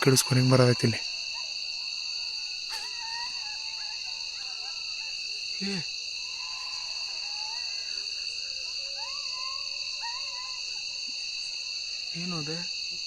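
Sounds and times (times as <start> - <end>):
faint wavering calls: 0.0 - 12.8
crickets and insects trilling: 0.0 - 13.0
low animal call: 2.7 - 11.2.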